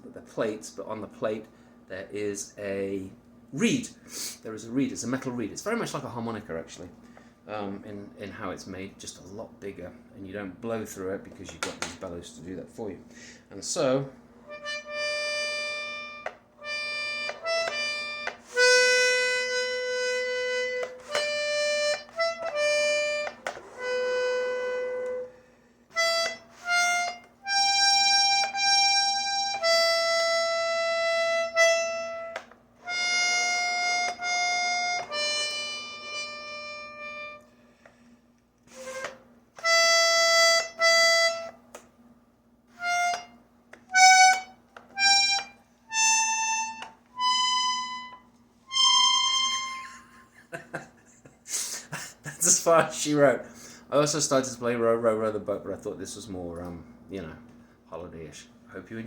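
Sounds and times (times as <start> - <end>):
accordion playing slow melody: 14.4 - 37.9, 38.7 - 41.7, 42.7 - 50.3.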